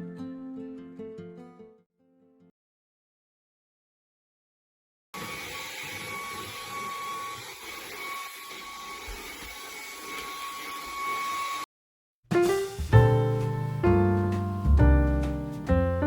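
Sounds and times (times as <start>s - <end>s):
music: 0.0s - 2.5s, 12.3s - 16.0s.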